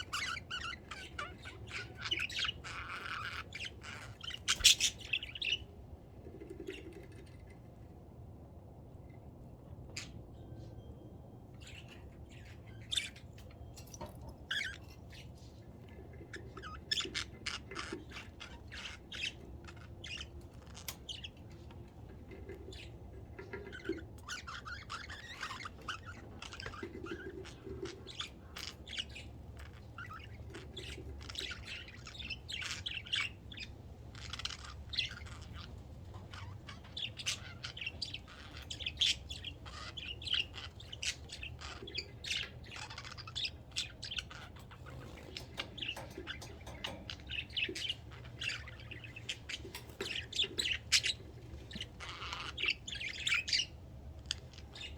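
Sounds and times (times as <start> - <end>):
budgerigars chirping and chattering: 0.0 - 7.7, 11.6 - 54.9
steady low hum: 0.0 - 54.9.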